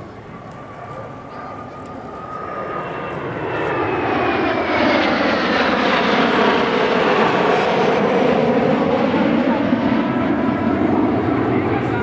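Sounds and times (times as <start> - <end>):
jet flying past: 0.0 - 12.0.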